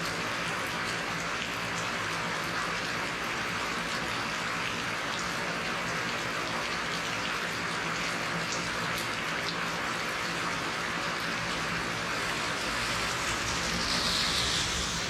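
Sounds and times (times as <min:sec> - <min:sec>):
steady rain falling: 0:00.0 - 0:15.0
separate raindrops: 0:07.1 - 0:15.0.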